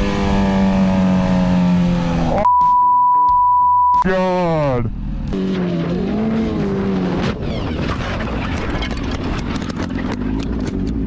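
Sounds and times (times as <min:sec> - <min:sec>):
motorcycle engine running roughly: 0:06.6 - 0:11.0.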